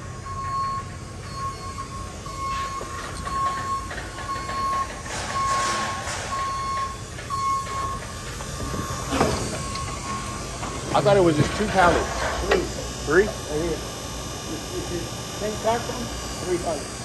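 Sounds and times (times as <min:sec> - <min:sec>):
backup alarm beeping: 0:00.0 - 0:17.0.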